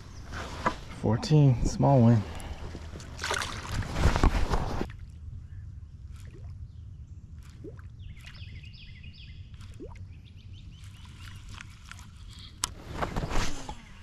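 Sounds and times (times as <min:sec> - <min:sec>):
low steady rumble: 0:04.8 - 0:10.9
birds chirping: 0:05.2 - 0:14.0.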